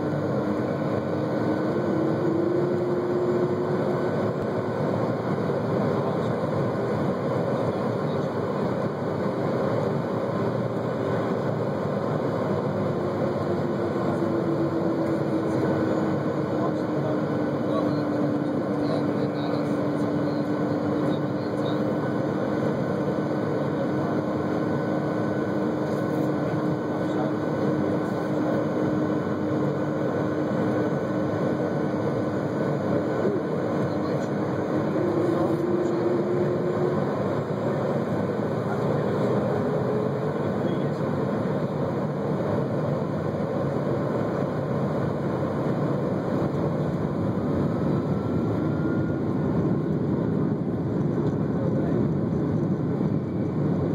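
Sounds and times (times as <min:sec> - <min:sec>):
jet engine rumble and whine in cabin: 0:00.0 - 0:53.9.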